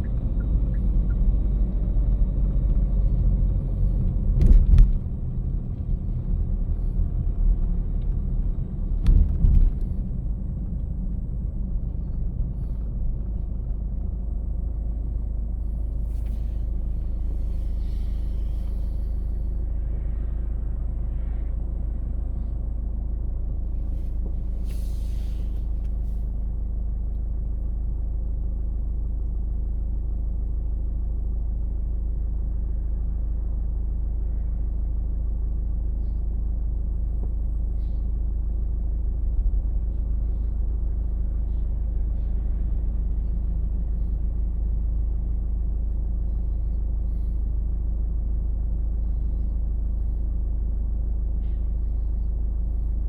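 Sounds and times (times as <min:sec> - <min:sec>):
car driving rumble: 0:00.0 - 0:53.0
brief hiss: 0:24.6 - 0:26.2.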